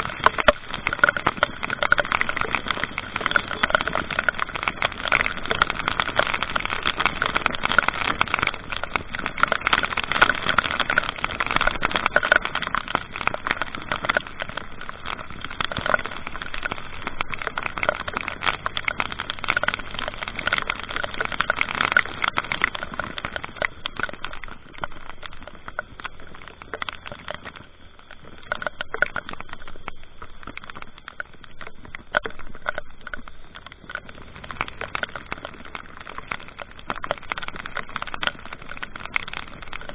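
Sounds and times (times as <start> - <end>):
vehicle road noise with crackling: 0.0 - 39.9.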